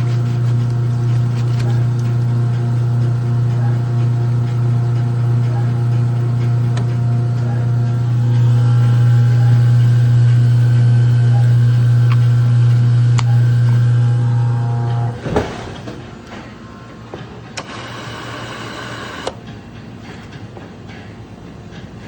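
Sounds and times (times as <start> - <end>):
loud machine hum: 0.0 - 19.8
machine clunk: 14.8 - 17.9.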